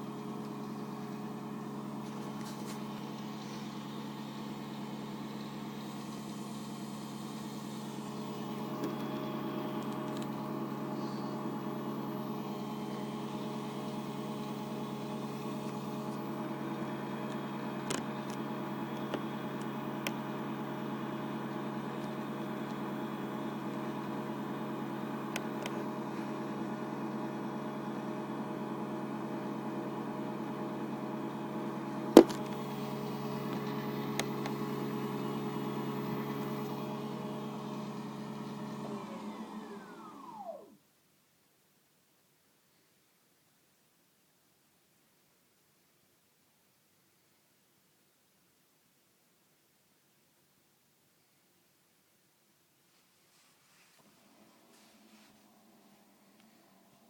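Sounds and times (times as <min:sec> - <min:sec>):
washing machine spinning: 0:00.0 - 0:40.5.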